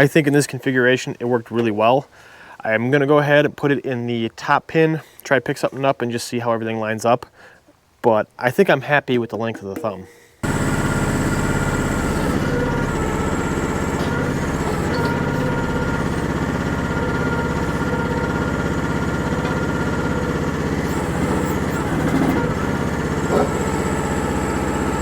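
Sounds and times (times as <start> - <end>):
small excavator engine running: 10.4 - 25.0.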